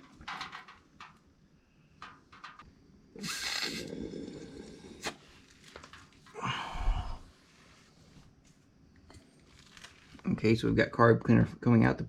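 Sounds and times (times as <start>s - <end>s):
air blown through hose: 3.2s - 5.2s.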